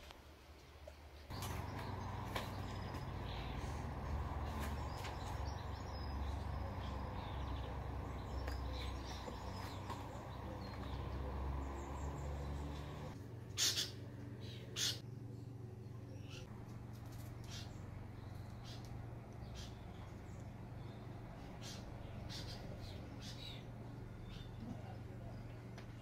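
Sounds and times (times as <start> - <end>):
faint birdsong: 0.6 - 26.0
steady low rumble: 1.3 - 13.2.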